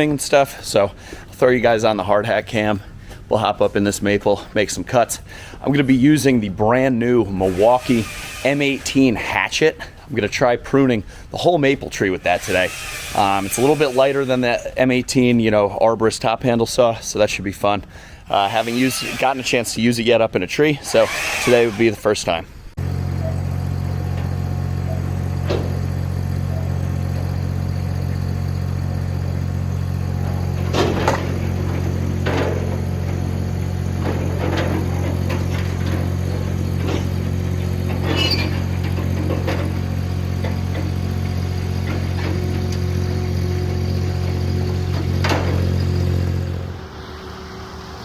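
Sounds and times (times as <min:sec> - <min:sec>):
engine running steadily: 0:22.8 - 0:48.0.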